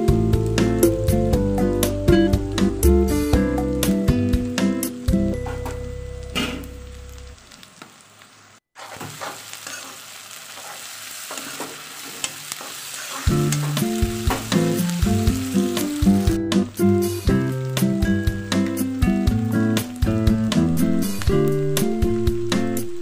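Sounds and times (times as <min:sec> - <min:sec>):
background music: 0:00.0 - 0:07.2, 0:13.3 - 0:23.0
onions sizzling in hot oil: 0:00.0 - 0:23.0
wooden spatula scraping pan: 0:08.8 - 0:13.8.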